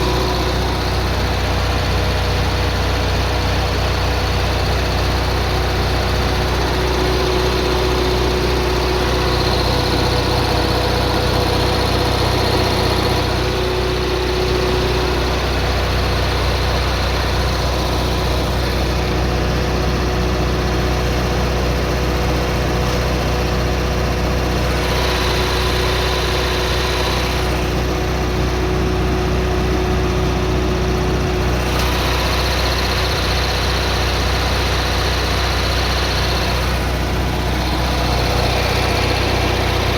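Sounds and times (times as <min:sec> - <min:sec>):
generator engine humming: 0:00.0 - 0:39.9.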